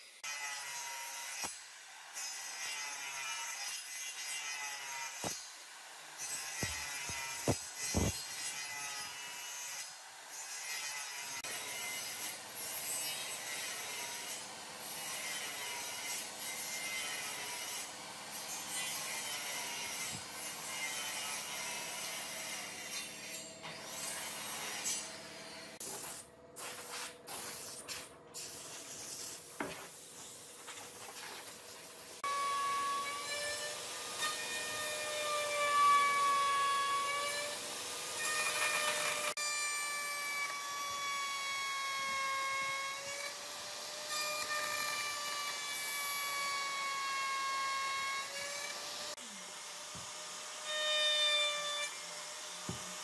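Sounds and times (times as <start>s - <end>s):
sanding wood: 6.3s - 8.2s.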